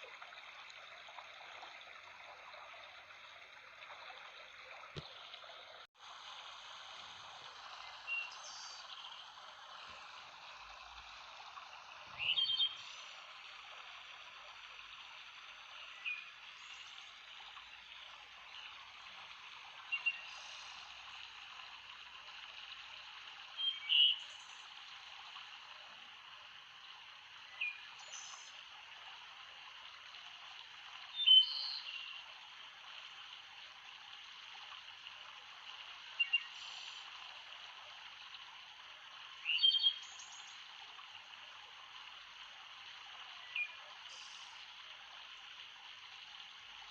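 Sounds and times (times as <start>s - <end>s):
flowing water: 0.0s - 46.9s.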